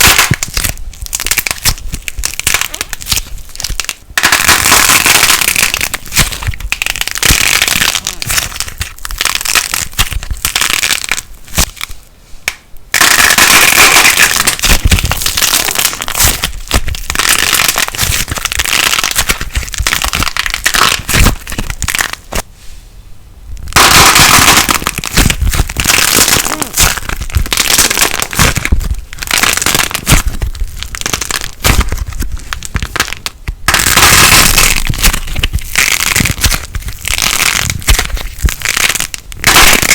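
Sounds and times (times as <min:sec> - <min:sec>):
plasticine squeezed crackling: 0:00.0 - 0:22.4, 0:23.6 - 0:39.9.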